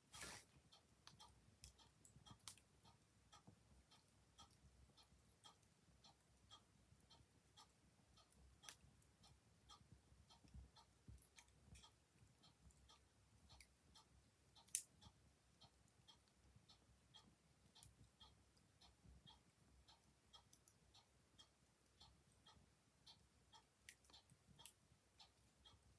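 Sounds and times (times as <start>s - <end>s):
clock ticking: 0.0s - 25.9s.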